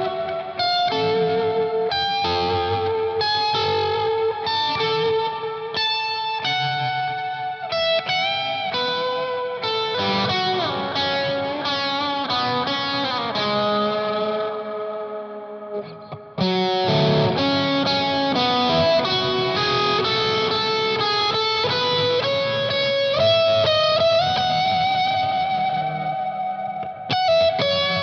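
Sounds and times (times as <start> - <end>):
overdriven electric guitar lead: 0.0 - 28.0.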